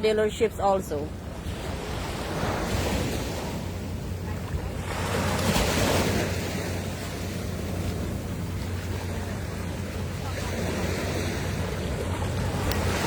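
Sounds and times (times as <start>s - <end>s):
wind rumbling on microphone: 0.0s - 13.0s
ocean surf breaking: 1.0s - 13.0s.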